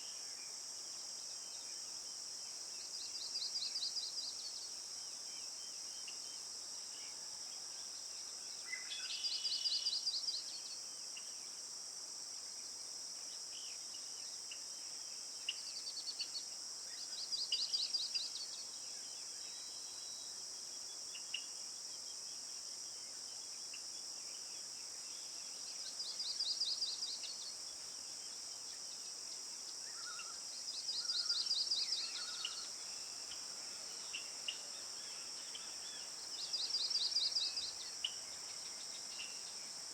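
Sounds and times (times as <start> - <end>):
faint bird chirps: 29.8 - 33.1.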